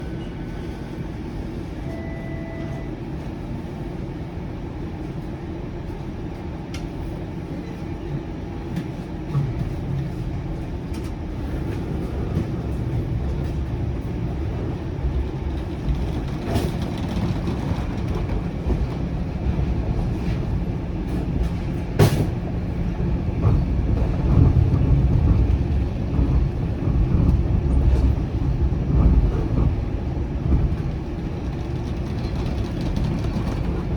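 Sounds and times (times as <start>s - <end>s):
streetcar rumbling: 0.0s - 33.9s
brief beep: 1.8s - 3.0s.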